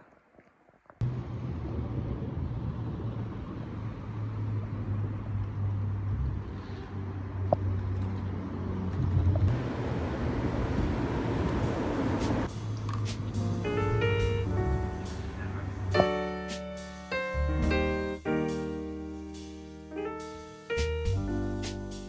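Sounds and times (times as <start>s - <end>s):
moving vehicle hum and rumble: 1.0s - 16.5s.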